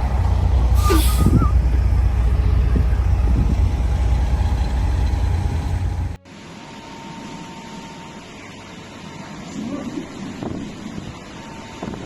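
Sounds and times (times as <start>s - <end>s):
truck engine rumbling: 0.0s - 6.2s
faint steady whine: 4.6s - 12.0s.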